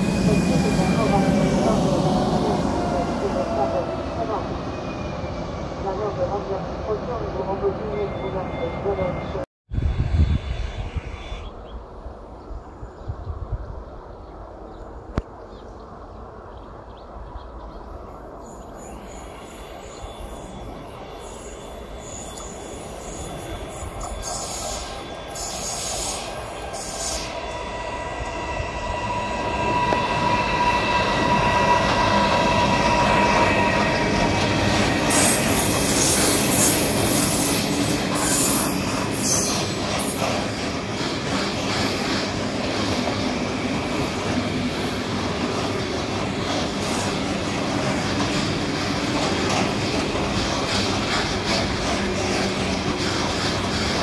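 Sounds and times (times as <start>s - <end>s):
high squealing tones: 19.1s - 40.3s
electric train running: 20.1s - 54.0s.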